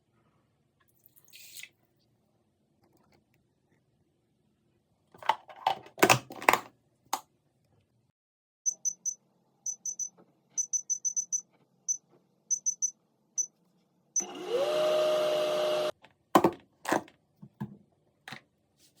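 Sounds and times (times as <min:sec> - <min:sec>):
keypad beeps: 0:08.7 - 0:13.5
microwave oven humming: 0:14.2 - 0:15.9.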